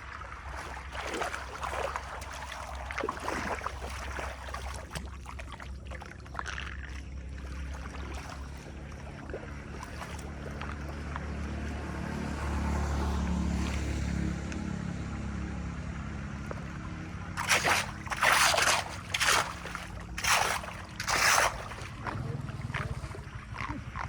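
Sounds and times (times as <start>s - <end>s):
flood water rushing: 0.0s - 6.6s, 17.3s - 24.0s
water splashes: 0.0s - 14.4s, 16.3s - 24.0s.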